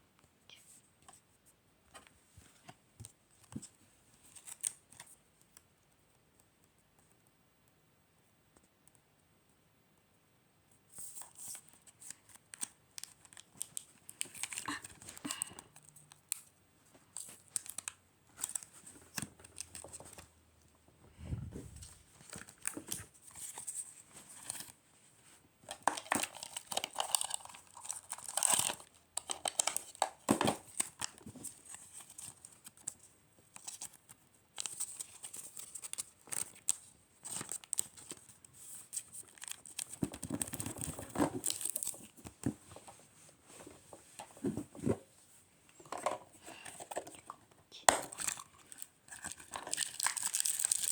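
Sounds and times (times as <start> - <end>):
packaging crinkling and tearing: 11.2 - 16.4, 17.1 - 20.2, 25.7 - 33.0, 34.6 - 42.2, 47.9 - 50.9.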